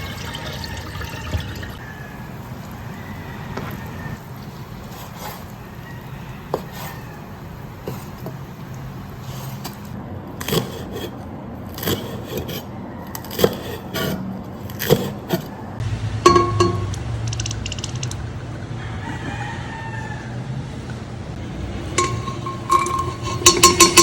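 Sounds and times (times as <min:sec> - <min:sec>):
utensils knocking and scraping cookware: 0:16.2 - 0:18.0, 0:21.9 - 0:24.0.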